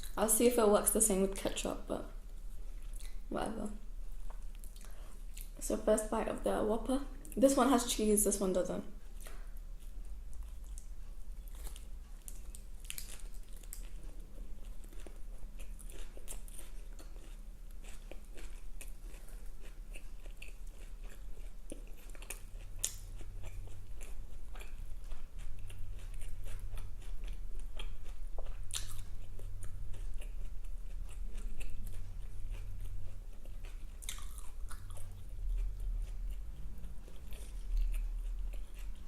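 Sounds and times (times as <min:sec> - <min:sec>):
steady low hum: 0:00.0 - 0:39.0
biting and chewing burger: 0:09.2 - 0:39.0.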